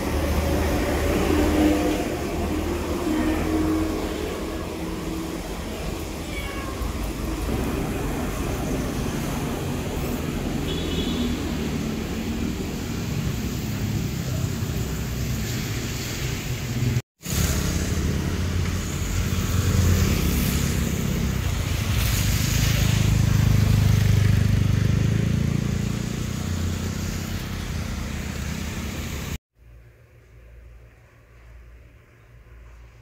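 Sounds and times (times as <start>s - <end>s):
vehicle passing: 0.0s - 6.3s, 6.9s - 29.4s
low traffic rumble: 0.0s - 33.0s
rain falling: 4.7s - 10.6s, 11.3s - 25.0s.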